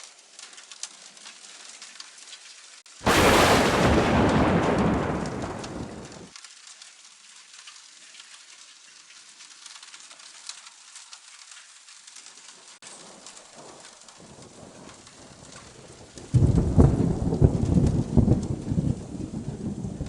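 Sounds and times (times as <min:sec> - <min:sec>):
rain pattering: 0:00.0 - 0:20.0
thunderclap rumbling: 0:03.0 - 0:06.3, 0:16.3 - 0:20.0.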